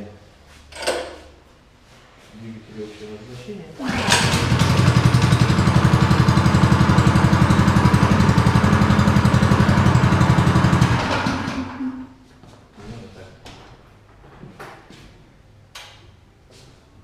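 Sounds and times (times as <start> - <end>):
small engine running: 3.8 - 12.0.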